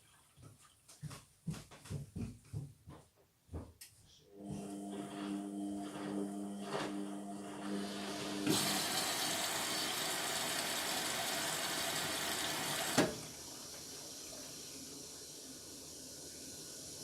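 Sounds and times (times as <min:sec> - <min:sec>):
water rushing into washing machine: 0:05.7 - 0:17.0.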